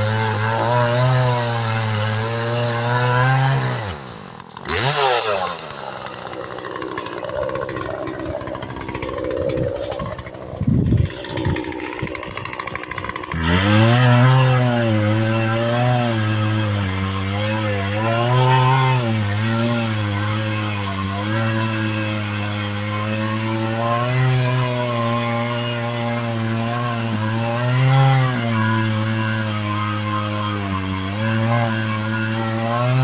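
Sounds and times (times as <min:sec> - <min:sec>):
chainsaw cutting wood: 0:00.0 - 0:33.0.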